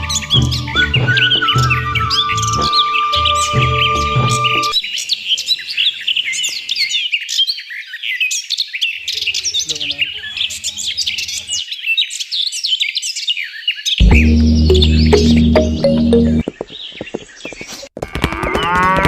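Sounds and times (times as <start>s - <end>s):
background music: 0.0s - 4.8s, 14.0s - 16.4s
small birds chirping and twittering: 0.0s - 18.9s.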